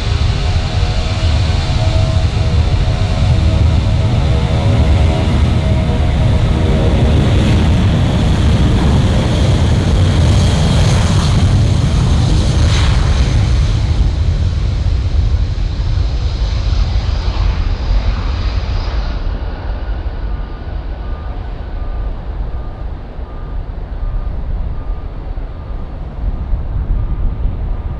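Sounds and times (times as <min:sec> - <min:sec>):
jet engines roaring: 0:00.0 - 0:27.9.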